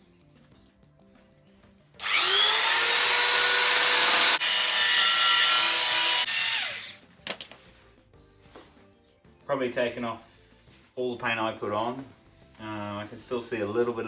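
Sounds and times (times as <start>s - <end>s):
power tool sanding with whine: 2.0s - 7.0s.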